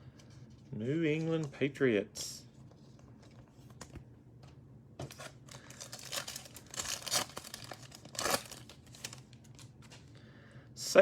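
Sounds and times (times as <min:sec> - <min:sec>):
cellophane wrapper crinkling: 0:05.1 - 0:10.1.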